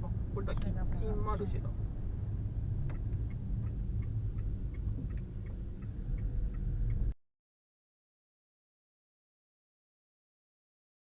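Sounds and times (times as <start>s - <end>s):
engine and road rumble: 0.0s - 7.2s
car turn signal clicking: 2.8s - 7.1s.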